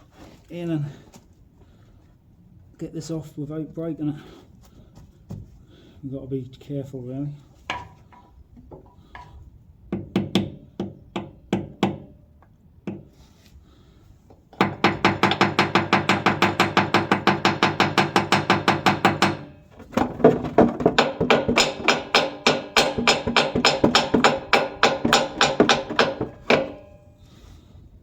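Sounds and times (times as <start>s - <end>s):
screwdriver tapping on metal tank: 12.8s - 13.1s, 14.6s - 19.5s, 21.0s - 26.9s.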